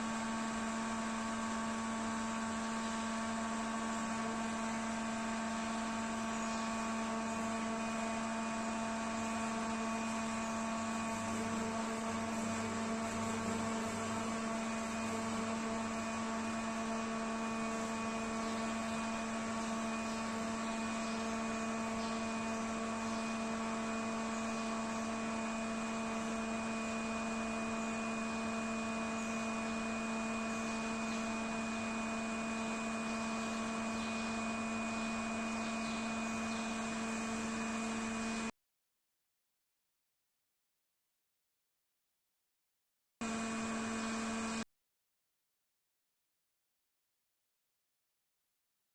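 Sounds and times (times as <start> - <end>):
shaking equipment hum: 3.1 - 38.5.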